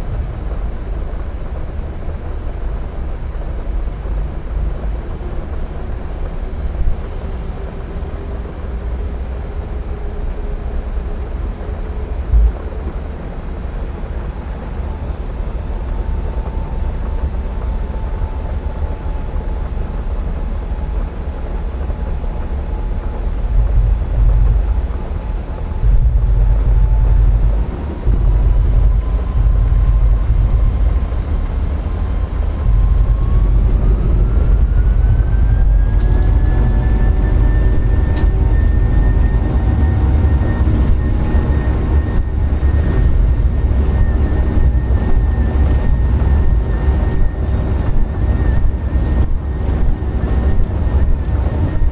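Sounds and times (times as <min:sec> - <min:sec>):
wind rumble on microphone: 0:00.0 - 0:51.9
jet engines whining: 0:21.4 - 0:51.9.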